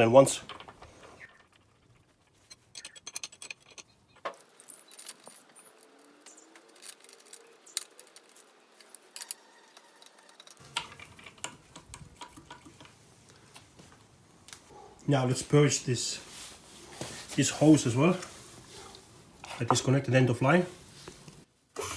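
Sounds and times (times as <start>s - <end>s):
metal parts and tools clinking: 0.5s - 12.8s.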